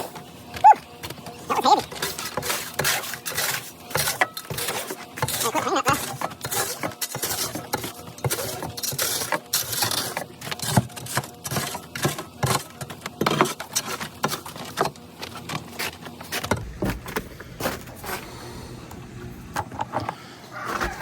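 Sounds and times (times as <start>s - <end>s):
tool scraping ice: 0.0s - 18.7s.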